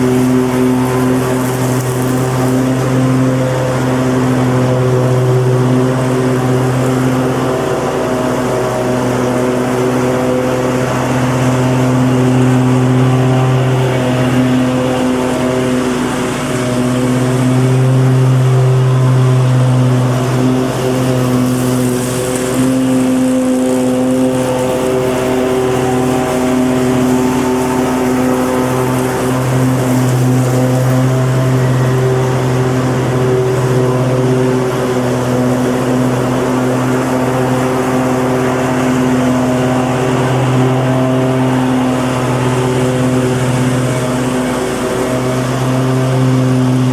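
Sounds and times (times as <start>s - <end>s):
lawn mower engine running: 0.0s - 46.9s.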